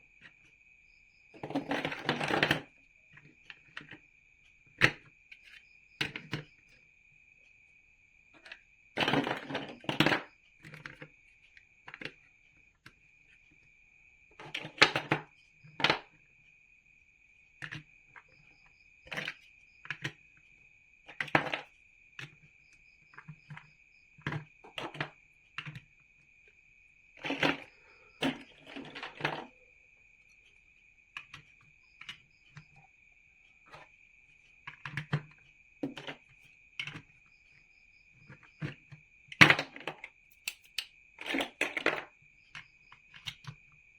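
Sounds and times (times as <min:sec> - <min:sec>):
plastic bricks clicking together: 0:39.3 - 0:42.1.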